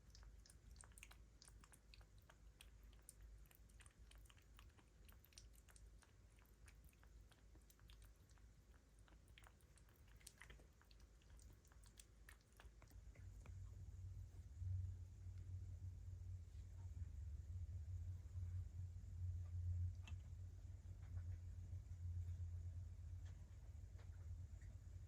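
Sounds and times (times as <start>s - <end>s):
kitten chewing: 0.0s - 15.5s, 19.5s - 21.2s
low rumble: 11.3s - 25.0s.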